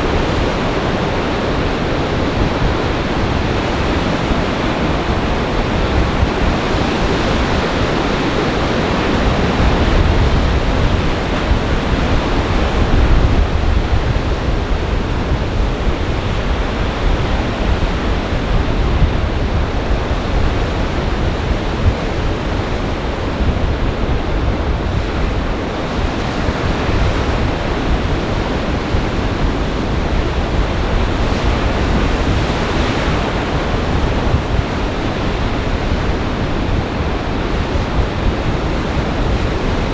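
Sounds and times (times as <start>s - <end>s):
waves breaking: 0.0s - 19.1s, 25.6s - 39.9s
wind buffeting microphone: 0.0s - 39.9s.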